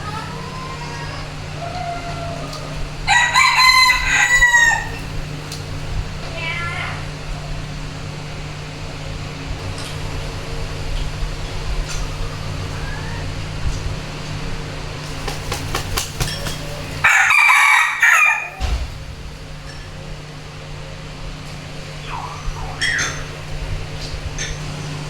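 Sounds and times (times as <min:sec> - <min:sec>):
rooster crowing: 0:00.4 - 0:05.4, 0:16.2 - 0:18.9.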